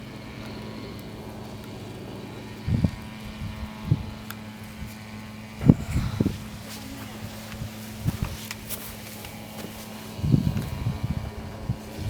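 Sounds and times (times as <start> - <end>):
motorcycle engine running unevenly: 0.0 - 12.0
loud engine thumps: 5.6 - 10.9.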